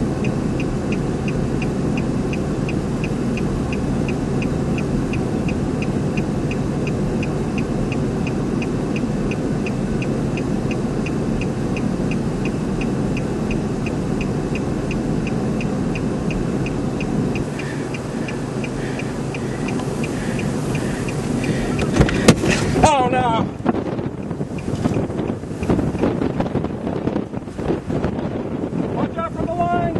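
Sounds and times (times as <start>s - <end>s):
car warning chime beeping: 0.0s - 23.5s
vehicle running: 0.0s - 29.9s
wind rumble: 0.0s - 29.9s.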